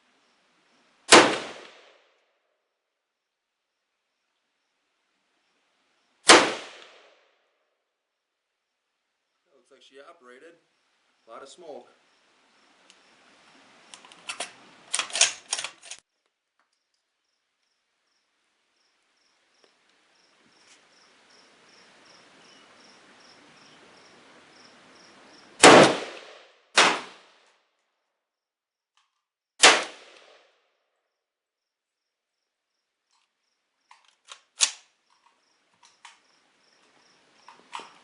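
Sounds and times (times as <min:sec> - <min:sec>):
rifle shots: 0:01.1 - 0:01.9, 0:06.3 - 0:07.1, 0:25.6 - 0:27.4, 0:29.6 - 0:30.4
metallic clicks of rifle handling: 0:13.9 - 0:16.0, 0:29.0 - 0:29.3, 0:33.1 - 0:36.2, 0:37.5 - 0:38.0.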